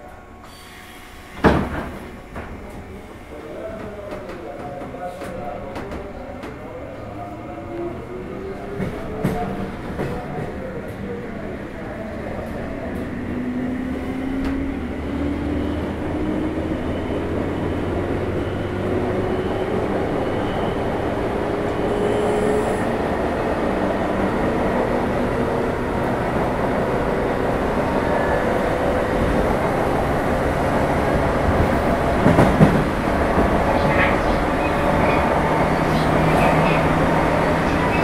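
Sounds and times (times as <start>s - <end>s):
wheels rumbling on rail: 0.0s - 38.0s.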